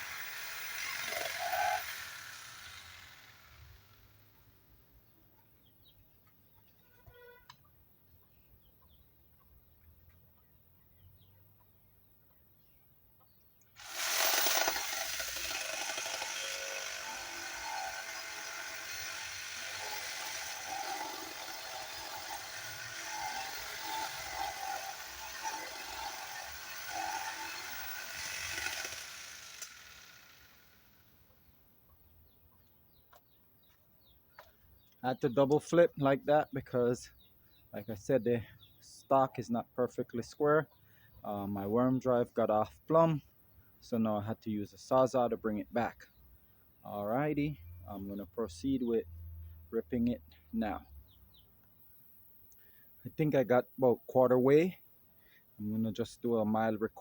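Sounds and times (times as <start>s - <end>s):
reciprocating saw cutting wood: 0.0s - 4.4s, 13.8s - 31.0s.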